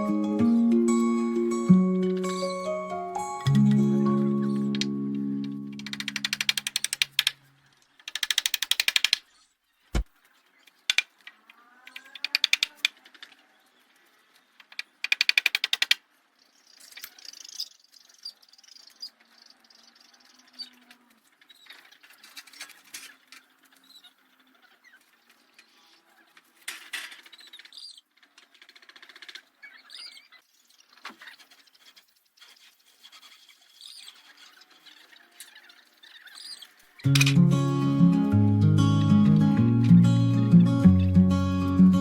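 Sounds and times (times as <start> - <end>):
rapid clicking bursts: 5.8 - 7.4, 8.0 - 9.3, 14.7 - 16.0.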